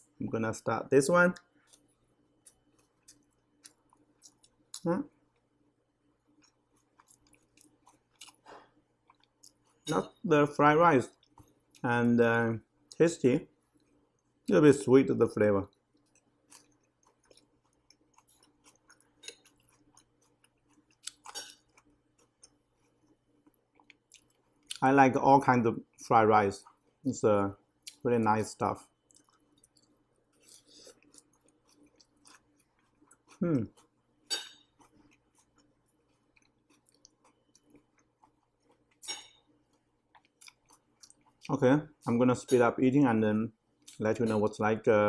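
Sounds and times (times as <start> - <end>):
quiet chewing: 1.3 - 10.2, 11.0 - 14.5, 15.4 - 24.8, 25.5 - 42.7, 43.7 - 44.4
metal fork scraping a plate: 34.3 - 34.7.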